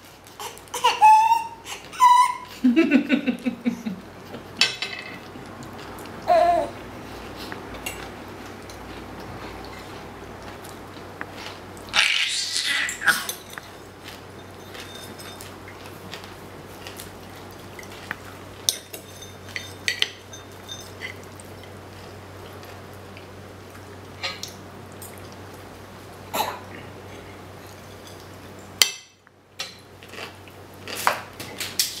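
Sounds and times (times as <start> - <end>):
low steady hum: 0.0 - 32.0
baby high squeaks: 0.4 - 2.5, 12.0 - 13.3.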